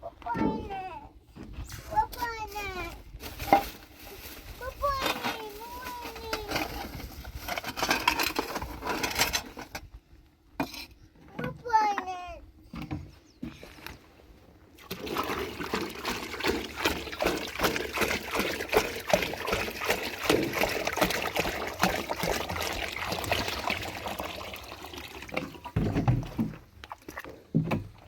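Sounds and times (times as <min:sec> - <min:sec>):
water pouring and splashing: 0:14.8 - 0:28.0.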